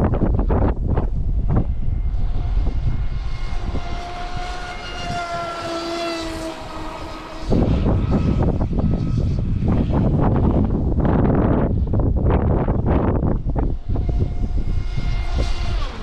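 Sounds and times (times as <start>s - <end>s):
rc boat motor whining: 0.0s - 16.0s
wind buffeting microphone: 0.0s - 16.0s.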